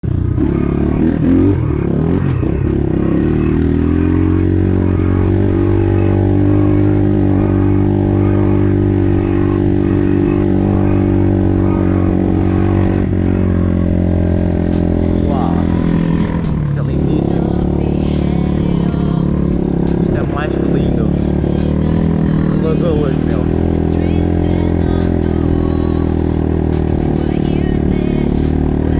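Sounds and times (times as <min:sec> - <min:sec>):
pit bike engine running: 0:00.0 - 0:28.9.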